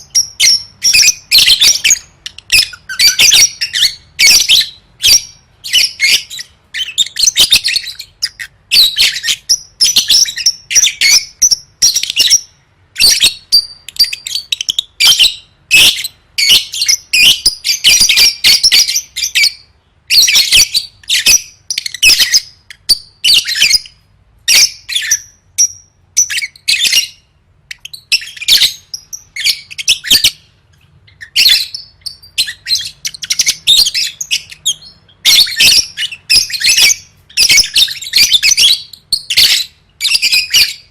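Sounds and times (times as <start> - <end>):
lovebird chattering trills: 0.0 - 19.6, 31.1 - 40.9.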